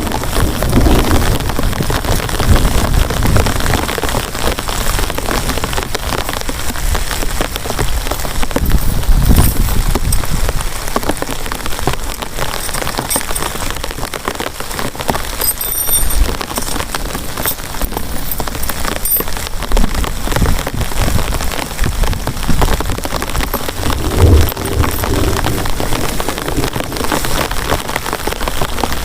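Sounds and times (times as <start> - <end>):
heavy rain falling: 0.0 - 29.0
low rumble: 23.4 - 27.3.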